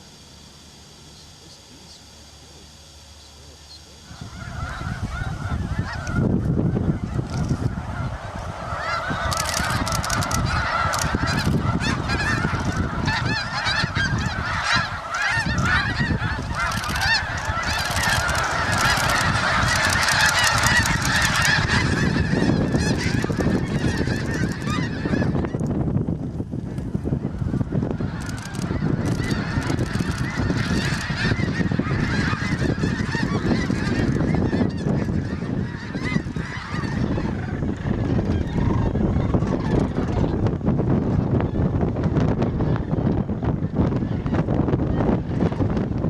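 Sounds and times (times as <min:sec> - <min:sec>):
flock of geese honking: 0:00.0 - 0:46.0.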